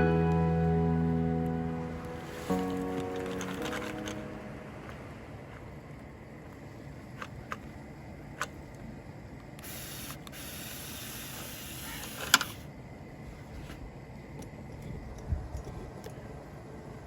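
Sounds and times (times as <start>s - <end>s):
small electric motor whirring: 9.6s - 12.7s.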